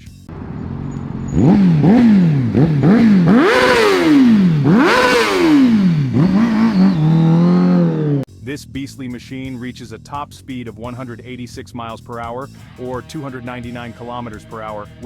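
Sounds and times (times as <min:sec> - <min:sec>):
motorcycle engine revving: 0:00.3 - 0:08.3.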